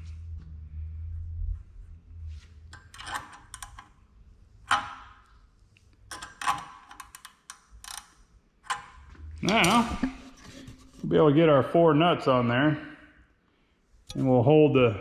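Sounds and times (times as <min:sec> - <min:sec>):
metal parts clicking and knocking: 0:02.7 - 0:04.0, 0:04.7 - 0:05.3, 0:06.1 - 0:11.0.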